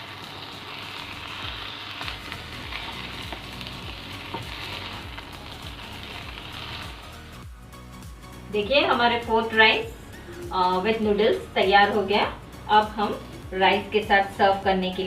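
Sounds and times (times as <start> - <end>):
food sizzling in a hot pan: 0.0 - 7.5.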